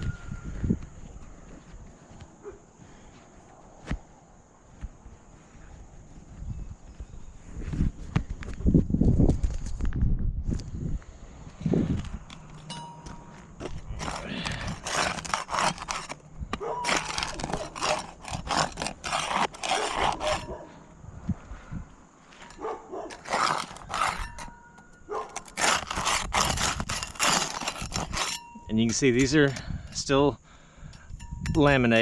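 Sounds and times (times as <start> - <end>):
putty knife scraping roof shingles: 13.4 - 16.2, 16.8 - 20.6, 22.4 - 29.0.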